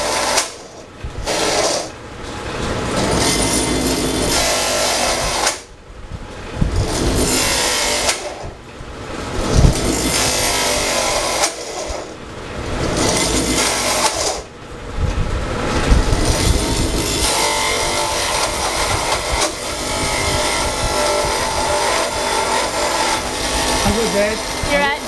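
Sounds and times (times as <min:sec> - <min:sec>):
router cutting wood: 0:03.0 - 0:05.6, 0:06.9 - 0:08.5, 0:09.8 - 0:12.1, 0:12.9 - 0:14.5, 0:16.1 - 0:25.0.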